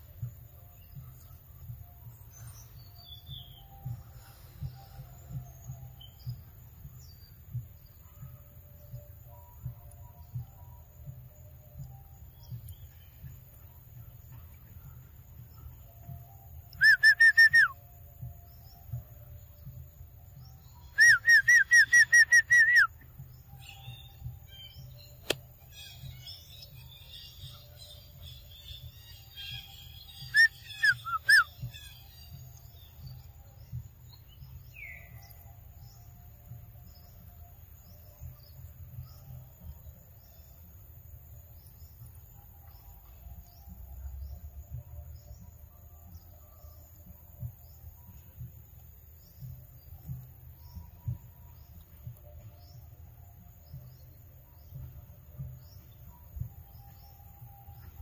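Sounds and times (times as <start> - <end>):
bird whistling falling notes: 16.8 - 17.8, 20.9 - 23.0, 30.3 - 31.9
sharp click: 25.2 - 25.4.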